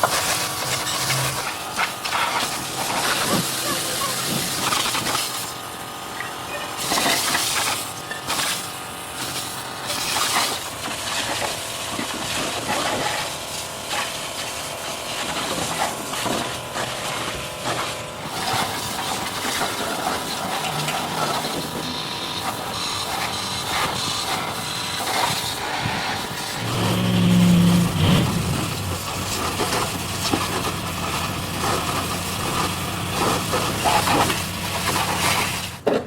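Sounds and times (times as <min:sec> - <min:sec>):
hissing bursts: 0:18.2 - 0:35.8.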